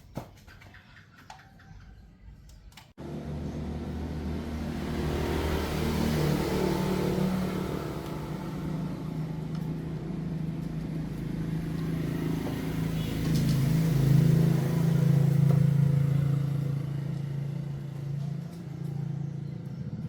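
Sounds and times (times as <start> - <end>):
engine droning hum: 2.2 - 20.0.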